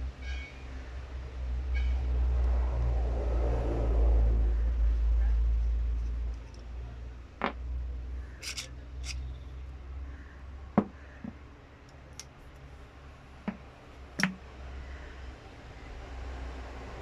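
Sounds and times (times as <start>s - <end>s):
tools and parts clicking: 6.0s - 6.7s, 8.4s - 9.3s.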